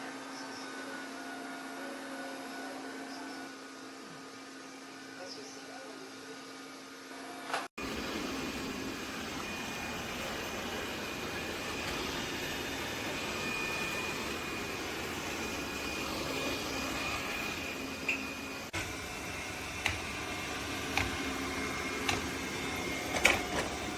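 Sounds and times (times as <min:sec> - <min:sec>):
robot vacuum whirring: 0:07.1 - 0:23.9.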